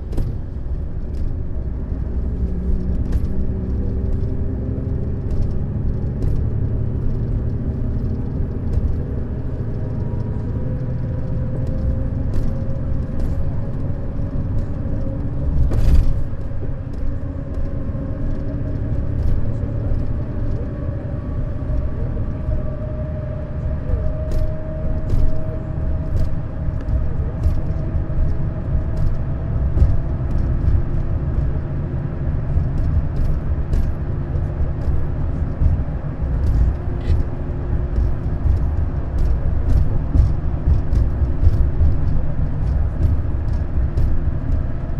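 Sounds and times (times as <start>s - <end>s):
coach engine and road rumble: 0.0s - 44.9s
faint clicks and rattles: 23.9s - 44.9s.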